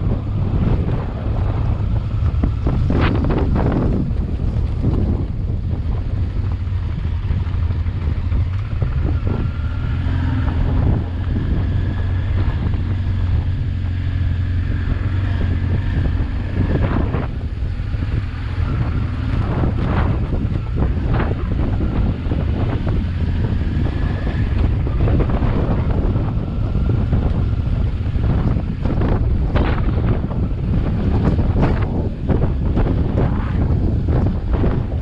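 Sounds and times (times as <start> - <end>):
motorcycle engine running: 0.0 - 35.0
wind buffeting the microphone: 0.0 - 35.0.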